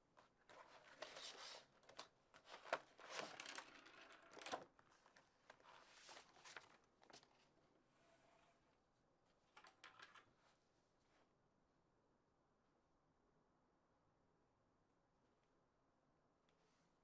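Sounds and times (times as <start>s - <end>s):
faint rustling and crinkling: 0.1s - 11.4s.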